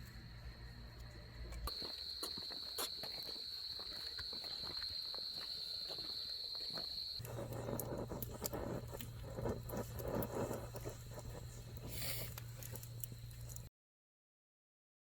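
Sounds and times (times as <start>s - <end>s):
insects chirring: 0.0s - 13.7s
crunching footsteps: 1.4s - 13.7s
low hum: 7.2s - 13.7s.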